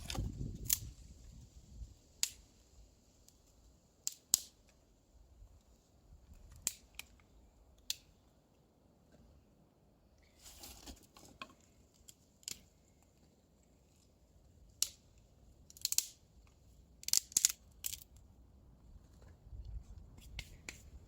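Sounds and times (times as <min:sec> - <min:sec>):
sharp scrapes and snaps: 0:00.0 - 0:01.0, 0:02.2 - 0:02.5, 0:04.0 - 0:04.8, 0:06.3 - 0:08.1, 0:10.2 - 0:12.7, 0:14.7 - 0:15.1, 0:15.7 - 0:18.2, 0:19.2 - 0:21.0.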